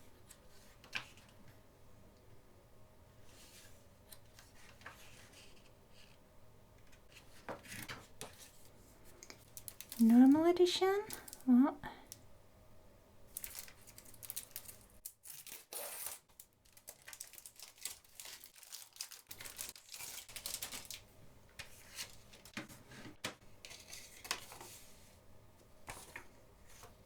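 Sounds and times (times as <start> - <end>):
plastic wrapping crinkling and tearing: 9.2 - 10.4, 13.3 - 22.6.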